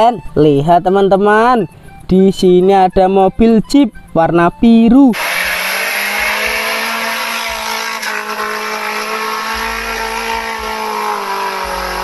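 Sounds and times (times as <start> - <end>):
off-road engine revving: 5.1 - 12.0.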